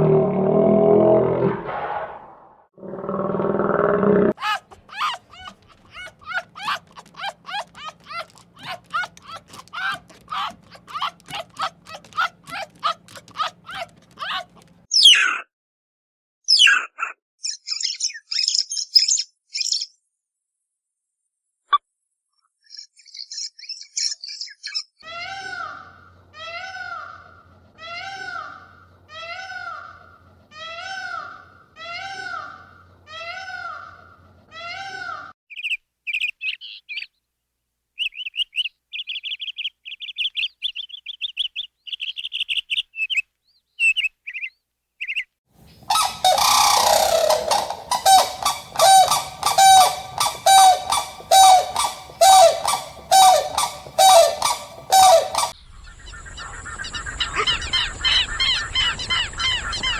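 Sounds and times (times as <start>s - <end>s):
repeated pitched animal call: 4.2s - 14.7s, 45.7s - 55.6s
flock of birds honking: 4.4s - 14.7s, 45.8s - 55.6s
rapid high chirping: 4.4s - 14.8s, 45.6s - 55.6s.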